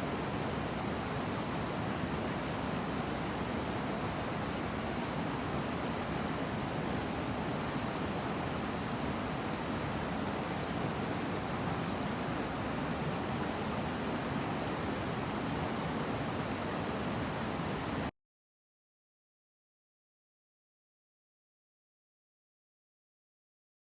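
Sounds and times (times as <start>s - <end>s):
waterfall rushing: 10.4s - 18.1s.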